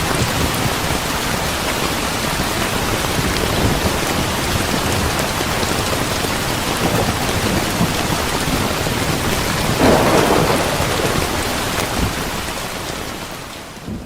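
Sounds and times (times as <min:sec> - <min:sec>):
rain hissing: 0:00.2 - 0:14.0
thunder burst: 0:09.8 - 0:13.2.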